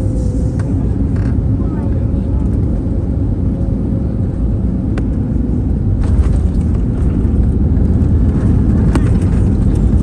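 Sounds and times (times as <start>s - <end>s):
aircraft cabin rumble taxiing: 0.0s - 10.0s
light cabin rattles: 6.0s - 10.0s.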